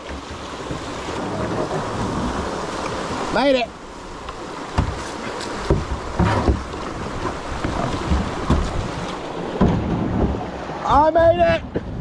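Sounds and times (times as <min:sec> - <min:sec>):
water rushing in rapids: 0:00.0 - 0:12.0
knocks on kayak: 0:04.7 - 0:10.5.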